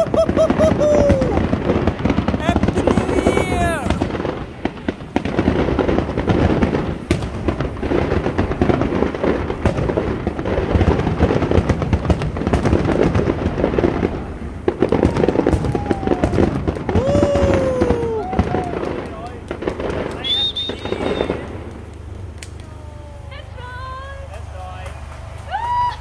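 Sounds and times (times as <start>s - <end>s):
fireworks crackling and banging: 0.0s - 26.0s.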